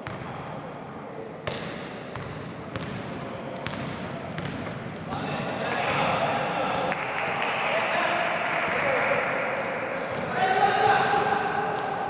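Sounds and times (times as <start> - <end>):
basketball bouncing on gym floor: 3.6 - 5.1
hall background noise: 5.0 - 12.0.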